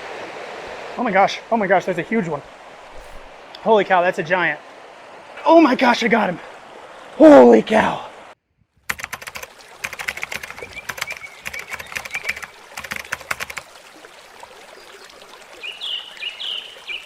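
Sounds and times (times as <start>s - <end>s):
river rushing: 0.0s - 8.4s
rapid irregular clicking: 8.9s - 13.6s
bird chirping: 10.6s - 12.5s.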